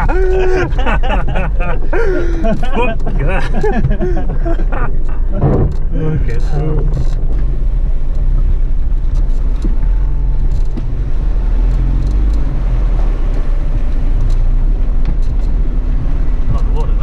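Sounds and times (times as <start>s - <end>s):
car engine droning: 0.0s - 17.0s
faint clicks: 14.2s - 15.7s.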